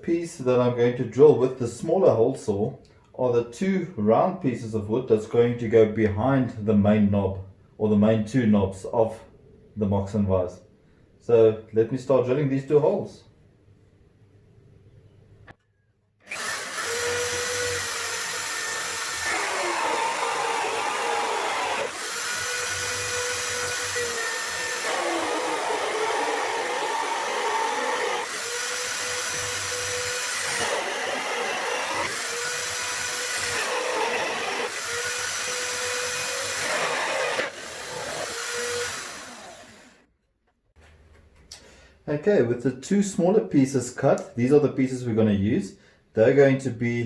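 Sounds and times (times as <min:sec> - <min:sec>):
power drill with hole saw cutting wood: 0:16.2 - 0:40.0.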